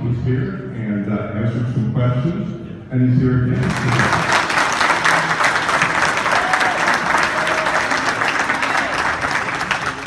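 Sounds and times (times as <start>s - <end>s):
people applauding: 3.6s - 10.0s.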